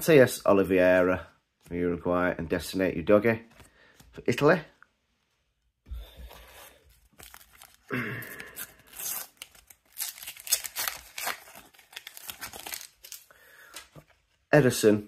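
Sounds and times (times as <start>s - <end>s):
wrappers crinkling: 7.0s - 14.3s
sticker packets tearing open: 7.2s - 13.8s.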